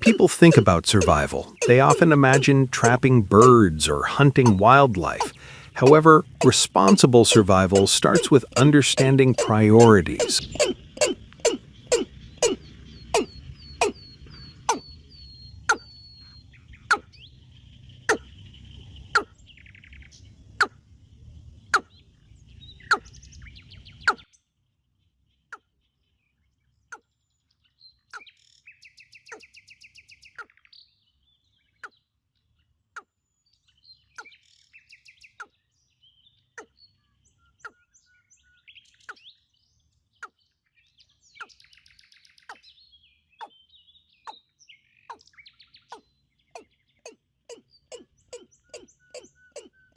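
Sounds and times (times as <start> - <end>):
sharp repeating click: 0.0 - 3.6, 4.4 - 12.6
birds chirping: 0.0 - 49.9.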